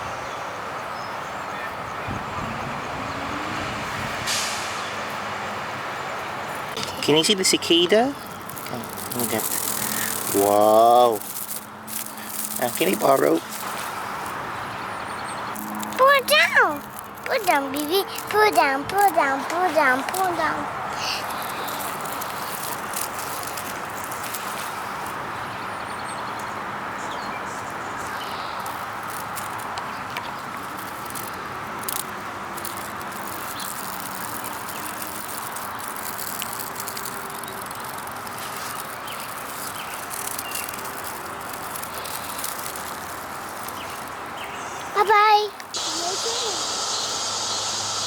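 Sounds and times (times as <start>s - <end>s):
cicadas droning buzz: 4.8s - 48.0s
faint chirps and clicks: 6.6s - 20.4s, 27.2s - 48.0s.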